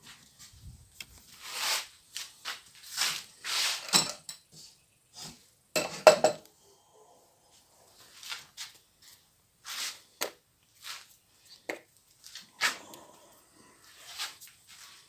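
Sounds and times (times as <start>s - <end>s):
metal objects clinking and scraping: 3.5s - 4.5s.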